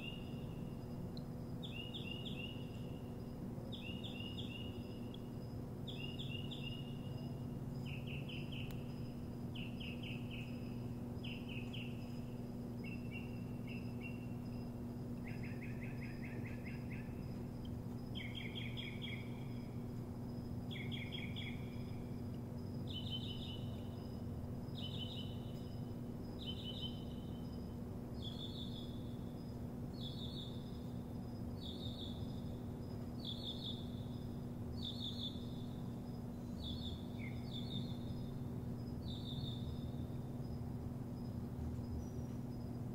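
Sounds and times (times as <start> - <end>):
songbird trilling: 0.0 - 19.9, 20.7 - 22.1, 22.8 - 32.6, 33.2 - 40.2
low hum: 0.0 - 42.9.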